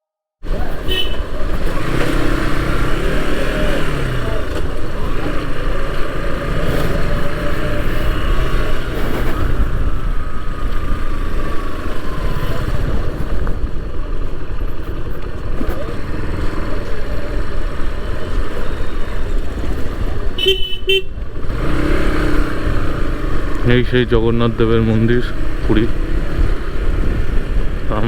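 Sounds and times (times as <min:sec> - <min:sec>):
motorcycle engine running: 0:00.4 - 0:28.0
vehicle horn toots: 0:00.5 - 0:02.0, 0:20.3 - 0:21.7
wind noise: 0:06.6 - 0:16.8, 0:25.4 - 0:28.0.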